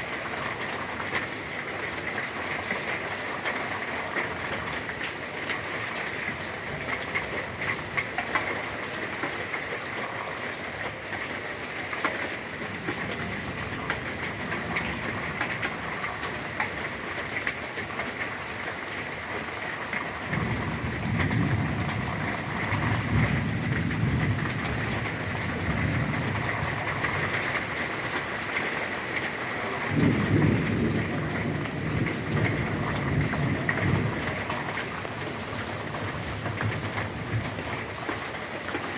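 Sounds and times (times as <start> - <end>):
heavy rain falling: 0.0 - 38.9
low rolls of thunder: 20.1 - 27.5, 29.8 - 38.0.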